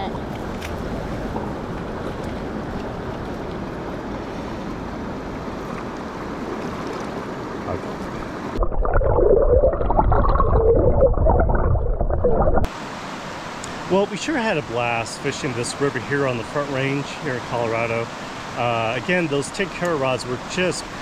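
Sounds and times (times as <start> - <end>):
river water rushing: 12.6 - 21.0.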